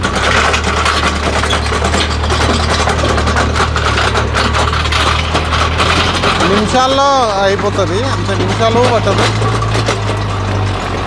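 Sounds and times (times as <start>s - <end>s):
earth auger rasping: 0.0s - 11.0s
tractor engine drone: 0.0s - 11.0s.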